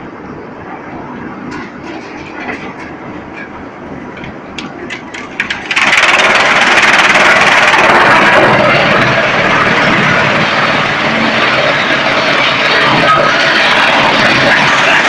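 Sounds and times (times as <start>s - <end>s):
loud dense rushing noise: 0.0s - 15.0s
wood chipper running: 4.6s - 15.0s.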